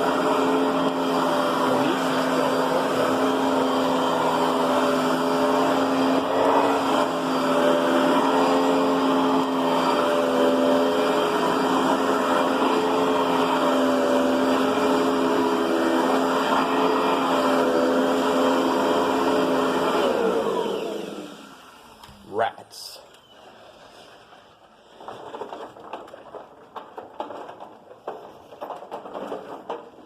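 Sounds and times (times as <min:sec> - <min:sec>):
upright vacuum cleaner running: 0:00.0 - 0:22.1.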